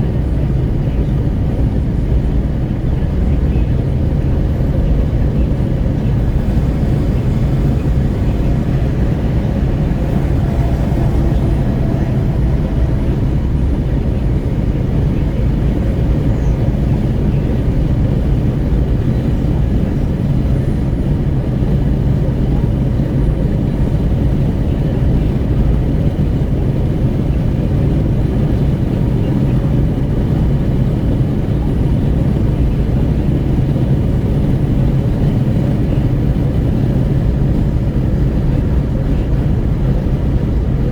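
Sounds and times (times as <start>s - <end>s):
road noise: 0.0s - 40.9s
wind buffeting at car window: 0.0s - 40.9s
car engine: 2.1s - 22.1s.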